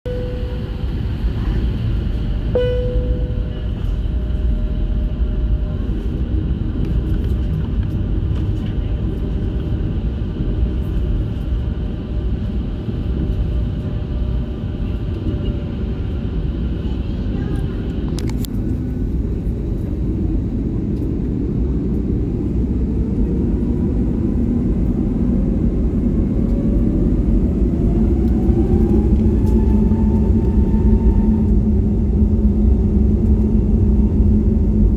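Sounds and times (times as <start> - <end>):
airplane cabin rumble: 0.0 - 34.9
brief pitched tone: 0.1 - 1.0, 2.6 - 4.1
jet engine whine rising: 0.1 - 6.1, 22.2 - 34.9.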